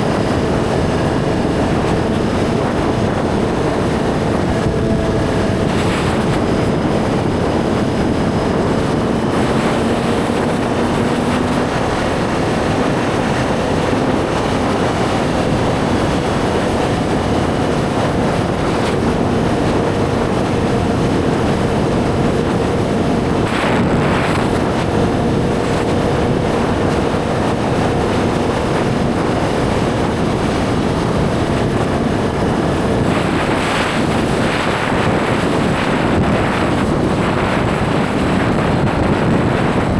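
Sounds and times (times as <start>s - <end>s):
motorcycle engine cruising: 0.0s - 39.9s
wind rush over microphone: 0.0s - 39.9s.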